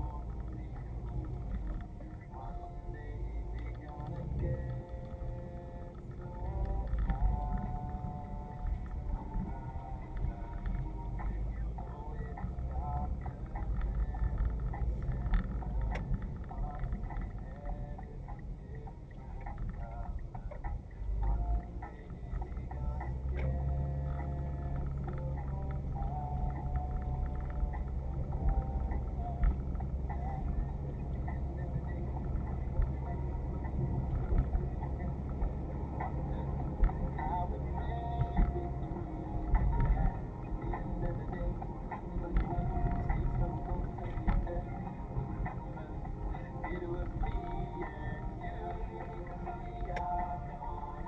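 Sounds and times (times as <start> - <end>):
car engine and road rumble: 0.0 - 51.0.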